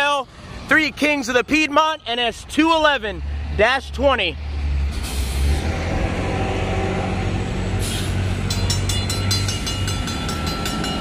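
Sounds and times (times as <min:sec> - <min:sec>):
diesel locomotive rumbling: 0:00.0 - 0:11.0
crossing warning bell ringing: 0:08.4 - 0:11.0.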